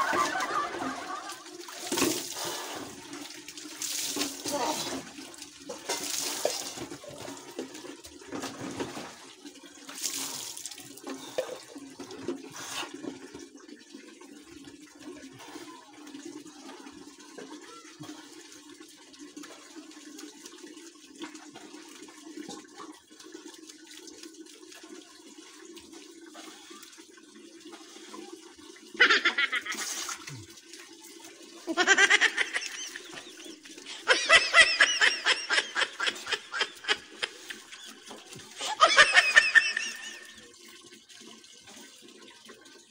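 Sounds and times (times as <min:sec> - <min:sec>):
water splashing: 0:00.0 - 0:07.6, 0:29.0 - 0:31.0, 0:31.6 - 0:40.4.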